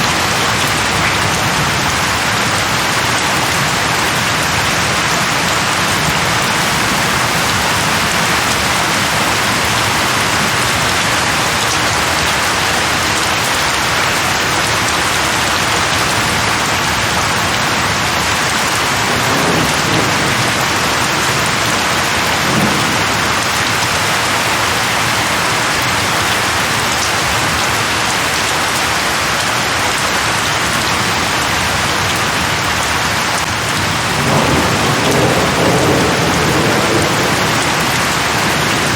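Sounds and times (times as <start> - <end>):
heavy rain hissing: 0.0 - 38.9
distant thunder rumbles: 5.9 - 12.1, 19.0 - 25.8, 33.9 - 38.9.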